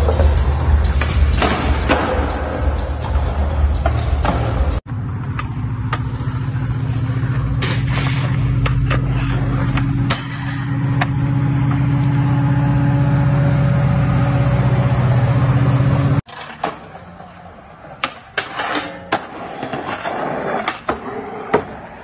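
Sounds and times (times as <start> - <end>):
diesel locomotive engine drone: 0.0 - 16.3.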